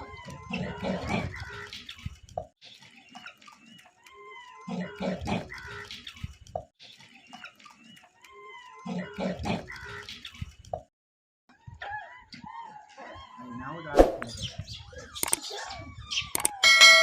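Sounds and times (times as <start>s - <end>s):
high chirping calls: 14.1s - 17.0s.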